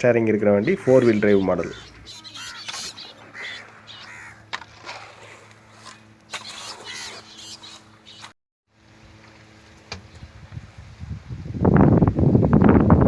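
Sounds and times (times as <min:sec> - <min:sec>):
crows cawing: 0:00.6 - 0:04.9, 0:05.8 - 0:08.2.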